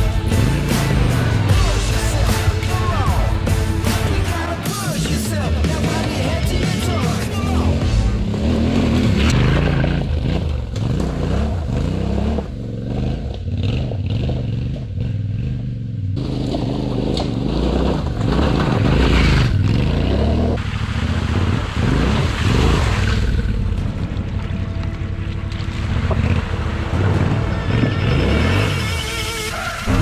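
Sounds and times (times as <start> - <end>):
motorcycle engine revving: 0.0 - 30.0
knocks and clatter over ground: 16.2 - 19.9.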